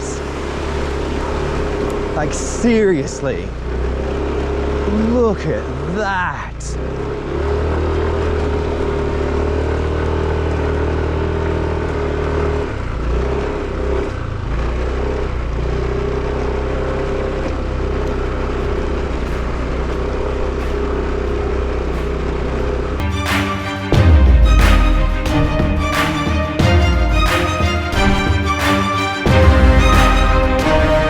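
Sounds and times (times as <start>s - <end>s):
moped engine running: 0.0s - 23.0s.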